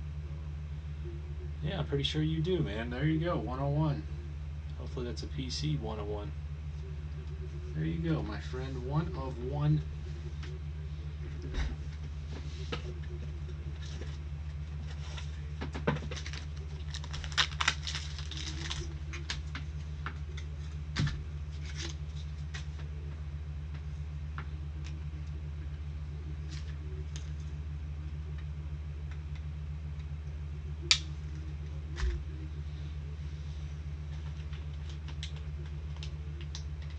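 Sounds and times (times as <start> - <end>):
low electrical hum: 0.0 - 36.9
trading cards being handled: 11.9 - 23.2.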